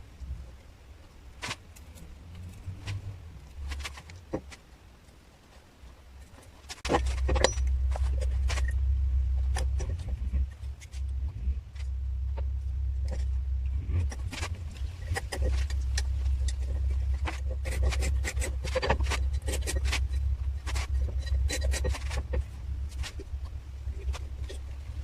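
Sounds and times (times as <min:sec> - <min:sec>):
low hum: 0:00.0 - 0:25.0
sharp clicks and knocks: 0:06.2 - 0:25.0.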